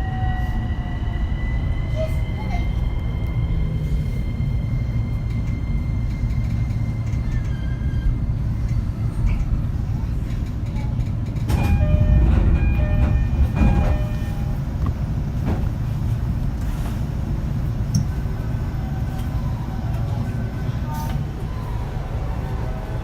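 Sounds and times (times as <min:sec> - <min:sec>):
train wheels rumbling on rail: 0:00.0 - 0:23.0
train clatter: 0:04.7 - 0:21.4.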